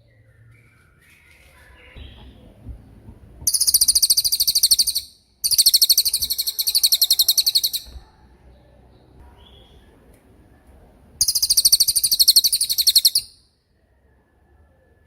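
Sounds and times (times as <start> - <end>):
songbird high-pitched trills: 3.5 - 8.0, 11.2 - 13.4
faint bird call: 3.5 - 8.2.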